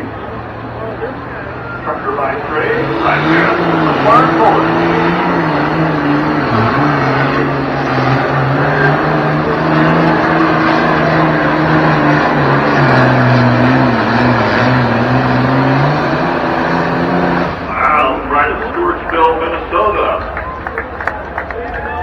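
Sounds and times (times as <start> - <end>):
tractor engine running hard: 0.0 - 22.0.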